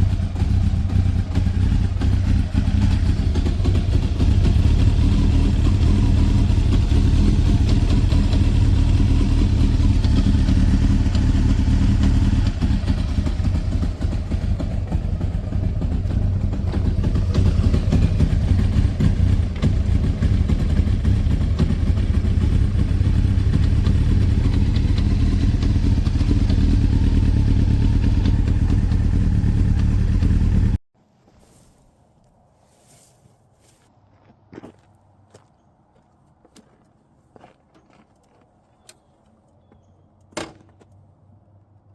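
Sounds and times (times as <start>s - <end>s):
motorcycle engine running: 0.0s - 30.8s.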